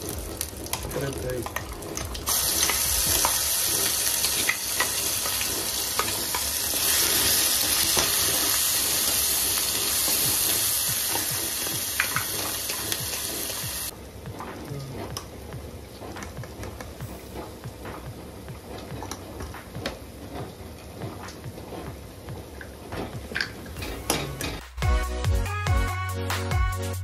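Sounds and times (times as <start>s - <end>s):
paste sizzling in hot oil: 0.0s - 13.9s.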